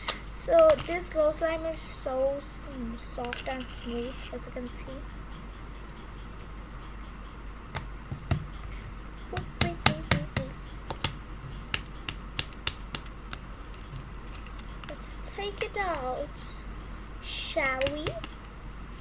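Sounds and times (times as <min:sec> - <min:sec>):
plastic container clicks and taps: 0:09.4 - 0:13.1, 0:17.8 - 0:18.4.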